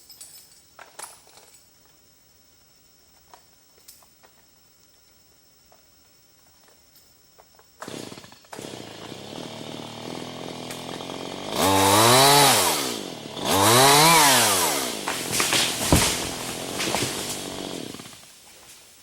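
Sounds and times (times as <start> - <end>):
chainsaw idling and revving: 7.8 - 18.3.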